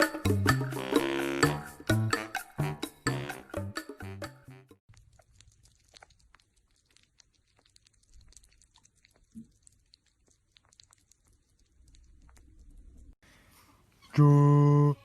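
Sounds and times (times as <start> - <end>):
music: 0.0 - 4.8
animal chewing food: 4.9 - 13.2.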